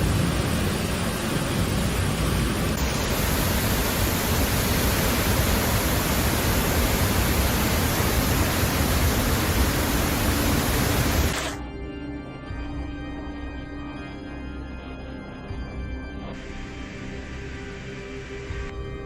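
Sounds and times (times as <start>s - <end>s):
loud steady rushing noise: 0.0s - 11.6s.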